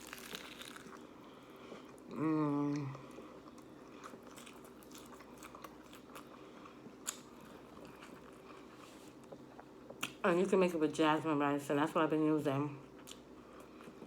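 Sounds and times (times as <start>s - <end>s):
lettuce crunching: 0.0s - 1.1s
person chewing lettuce: 0.0s - 10.1s
person humming: 2.1s - 3.0s.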